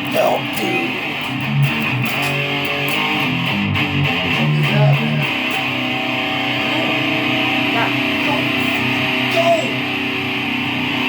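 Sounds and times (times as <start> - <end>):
electric guitar playing: 0.0 - 11.0.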